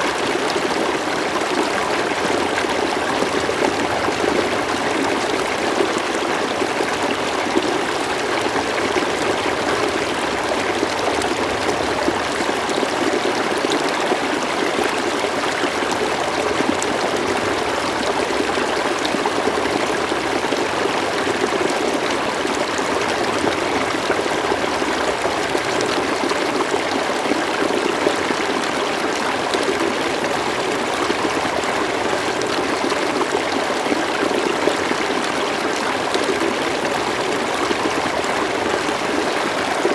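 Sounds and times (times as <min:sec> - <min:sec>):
river flowing over stones: 0:00.0 - 0:39.9.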